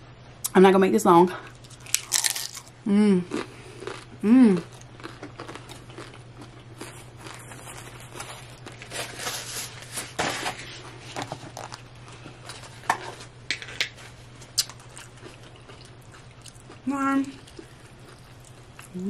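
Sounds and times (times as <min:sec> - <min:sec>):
steady low hum: 0:00.0 - 0:19.0
chewing food with crunching: 0:03.3 - 0:09.5, 0:14.0 - 0:19.0.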